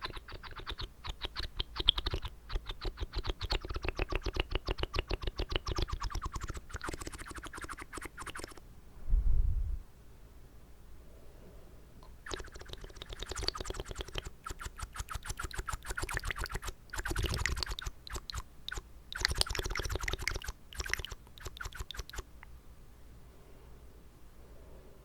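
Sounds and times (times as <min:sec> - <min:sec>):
wet mouth clicking and smacking: 0:00.0 - 0:08.6, 0:12.0 - 0:22.3.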